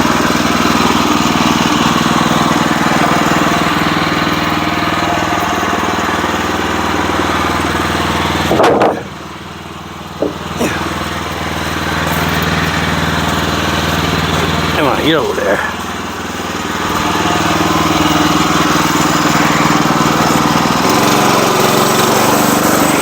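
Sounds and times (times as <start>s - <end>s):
sawmill engine running: 0.0s - 23.0s
light knocks: 10.2s - 10.6s.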